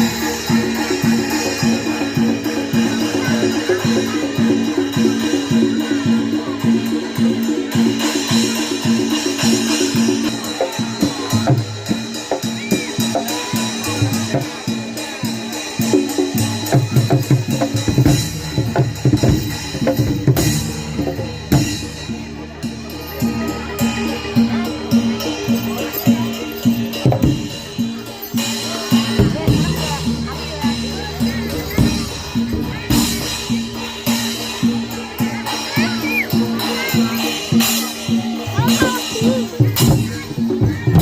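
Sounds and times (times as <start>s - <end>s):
drums beating a driving rhythm: 0.0s - 41.0s
ringing metallophones: 0.0s - 41.0s.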